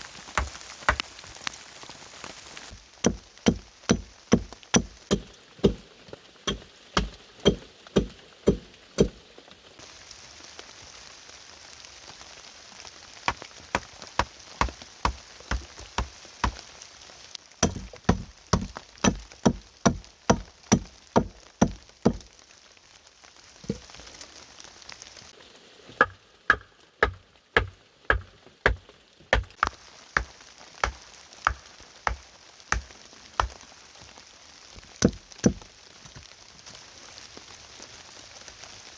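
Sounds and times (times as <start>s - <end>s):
heavy rain hissing: 0.0s - 38.9s
sharp even knocks: 6.5s - 9.1s, 17.6s - 22.2s.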